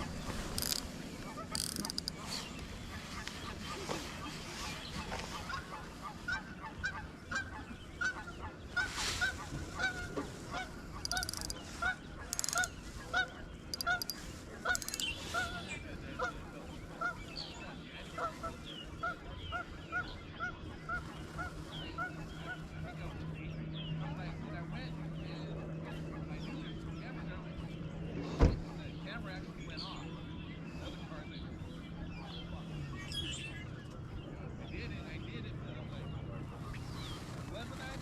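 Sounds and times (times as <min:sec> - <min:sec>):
geese honking: 0:00.0 - 0:23.2.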